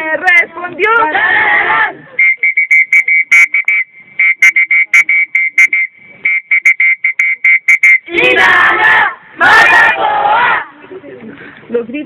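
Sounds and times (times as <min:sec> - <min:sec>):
high-pitched whistle toots: 0:02.2 - 0:08.1.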